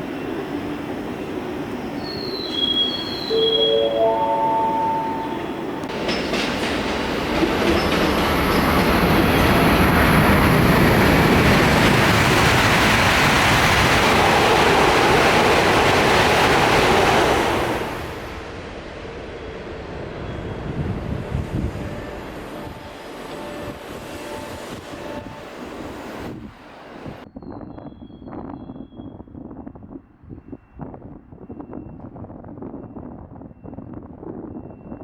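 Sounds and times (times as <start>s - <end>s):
high-speed train passing: 0.0s - 27.3s.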